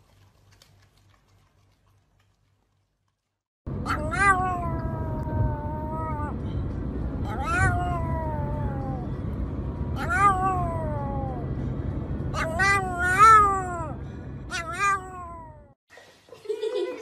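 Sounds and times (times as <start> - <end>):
low car rumble: 3.7 - 15.8
dog howling: 3.9 - 6.4, 7.3 - 9.1, 10.0 - 11.5.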